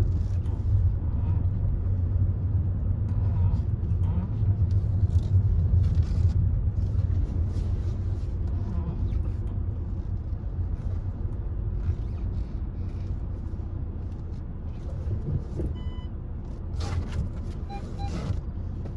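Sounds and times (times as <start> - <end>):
car engine and road rumble: 0.0 - 18.9
short electronic beep: 17.7 - 18.3.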